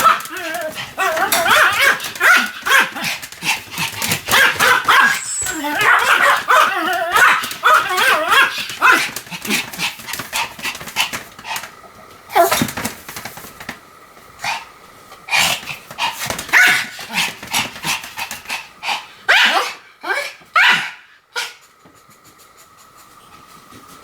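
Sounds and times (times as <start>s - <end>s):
small dog barking and yapping: 0.0s - 3.2s, 4.0s - 9.1s, 16.5s - 17.0s, 19.3s - 21.5s.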